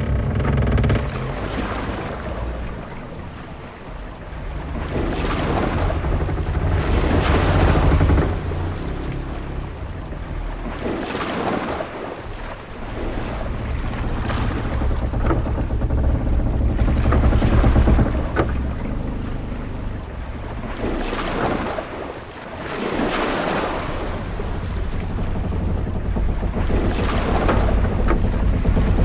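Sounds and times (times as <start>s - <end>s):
faint short knocks: 0.0s - 3.6s, 12.2s - 22.0s, 23.8s - 29.0s
low ship rumble: 0.0s - 29.0s
waves washing: 0.0s - 29.0s
wind: 0.0s - 29.0s.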